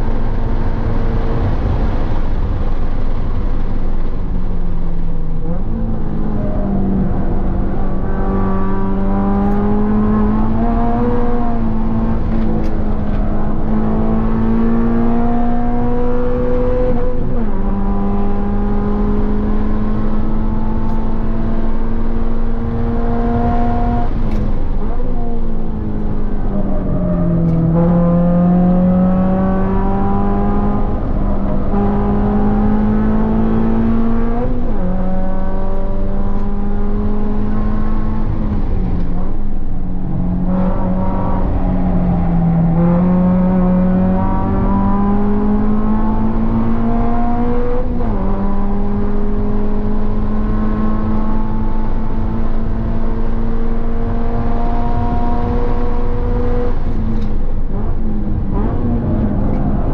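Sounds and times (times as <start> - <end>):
car engine at full throttle: 0.0 - 59.9.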